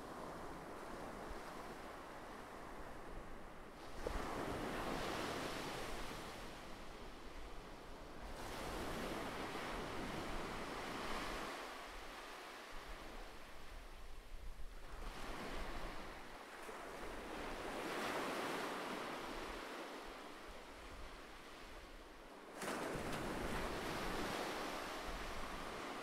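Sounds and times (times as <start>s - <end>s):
ocean surf washing ashore: 3.8s - 7.0s, 14.9s - 26.0s.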